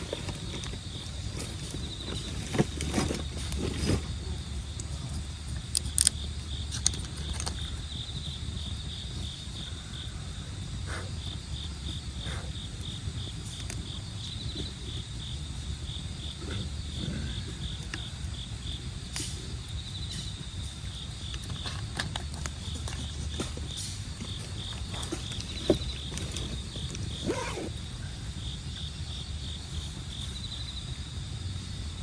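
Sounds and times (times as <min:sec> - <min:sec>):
crickets chirping: 0:00.0 - 0:32.0
campfire crackling and popping: 0:02.7 - 0:16.4, 0:17.8 - 0:27.3.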